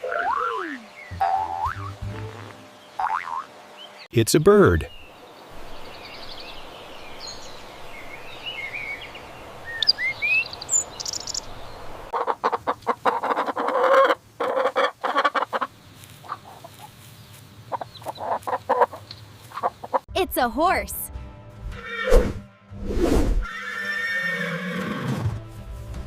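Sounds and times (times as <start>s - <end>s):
birds chirping: 0.0s - 20.1s
outdoor hiss: 2.0s - 12.2s
chickens clucking: 11.8s - 20.1s.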